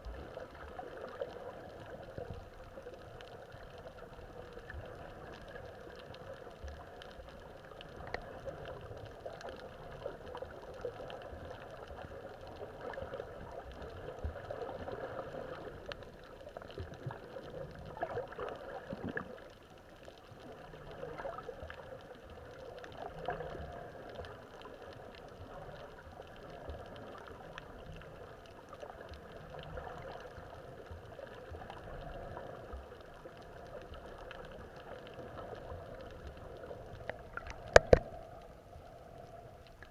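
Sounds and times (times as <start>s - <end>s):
underwater bubbling and gurgling: 0.0s - 39.9s
faint crackling: 28.8s - 39.9s.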